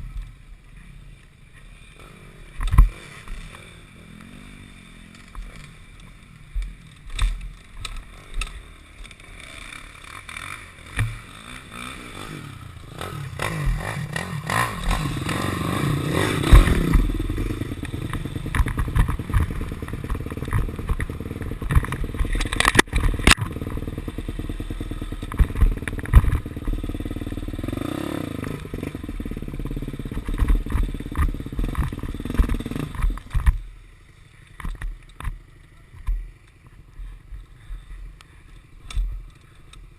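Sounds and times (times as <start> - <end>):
dirt bike engine revving: 1.8 - 33.6
engine knocks and clatter: 16.4 - 33.6.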